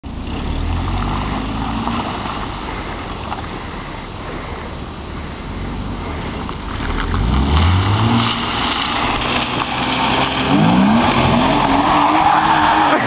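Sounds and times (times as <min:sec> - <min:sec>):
tyres hissing on wet road: 0:00.2 - 0:13.0
car engine revving: 0:05.3 - 0:13.0.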